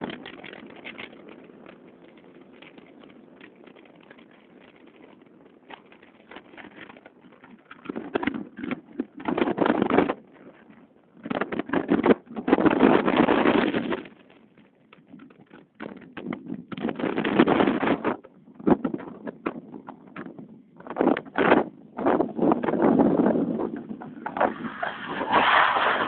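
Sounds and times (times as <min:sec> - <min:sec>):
motorcycle engines running: 0:00.0 - 0:09.2.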